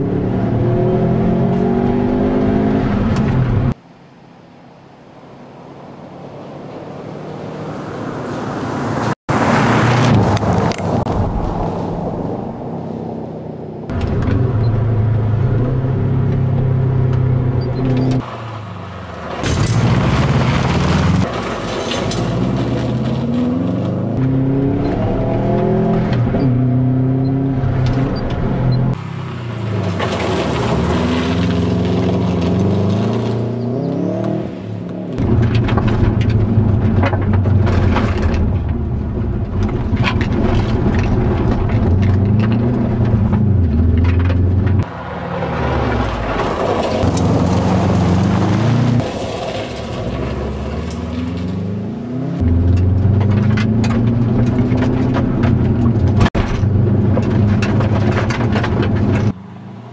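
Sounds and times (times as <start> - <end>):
car engine revving hard: 0.0 - 3.8
tyres spraying gravel: 18.2 - 23.4, 29.1 - 33.5, 46.0 - 51.5.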